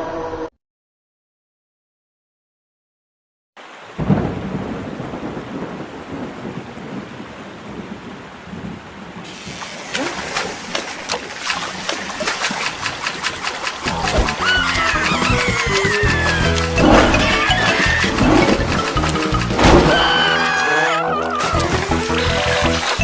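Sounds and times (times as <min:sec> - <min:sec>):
steady rain: 0:03.6 - 0:23.0
loud thunder clap: 0:04.0 - 0:10.6, 0:13.2 - 0:20.2.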